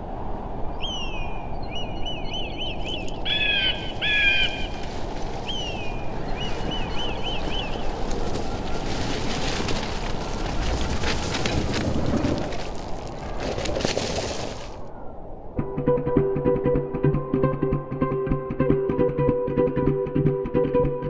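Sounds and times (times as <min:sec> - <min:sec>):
low rush of background noise: 0:00.0 - 0:14.0
birds whistling falling notes: 0:00.7 - 0:12.5
faint crackling: 0:03.8 - 0:14.9.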